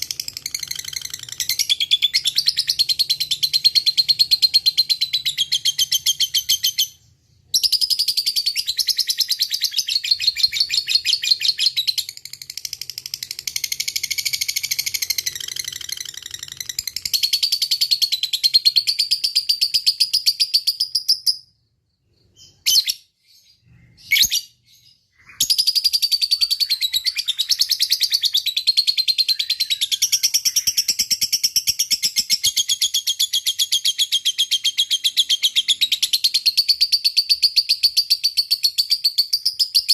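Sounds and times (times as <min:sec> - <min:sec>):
short bird chirps: 0:19.6 - 0:31.3.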